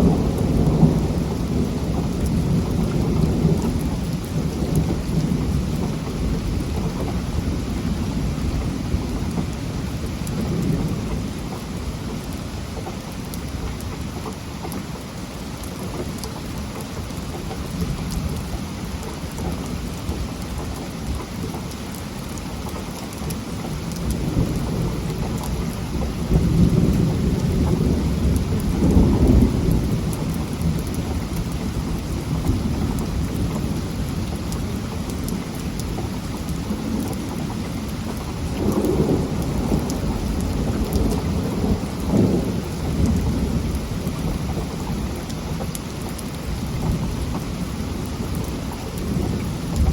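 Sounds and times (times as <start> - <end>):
rolling thunder: 0.0 - 12.5, 23.8 - 49.9
heavy rain falling: 0.0 - 49.9.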